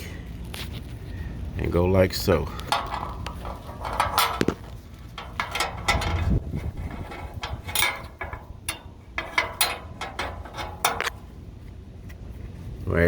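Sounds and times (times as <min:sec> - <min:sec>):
metal bolts clicking and clinking: 0:02.4 - 0:11.4.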